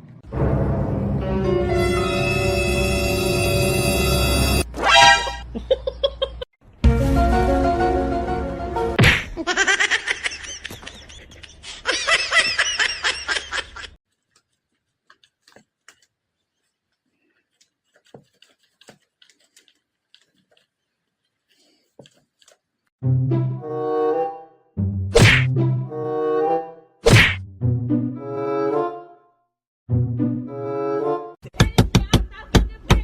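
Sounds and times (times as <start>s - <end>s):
music: 0.3s - 4.7s, 6.7s - 9.0s, 23.0s - 26.9s, 27.5s - 31.4s
person laughing hard: 5.4s - 6.5s, 9.4s - 14.0s.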